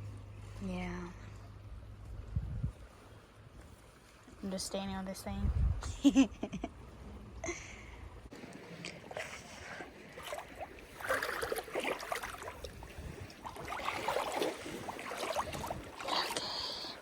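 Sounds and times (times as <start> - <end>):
seawater sloshing and splashing: 8.3 - 17.0.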